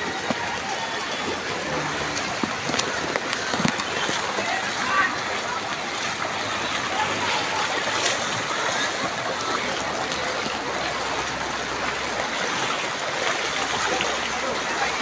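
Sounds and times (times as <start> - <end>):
rushing floodwater and rain: 0.0 - 15.0.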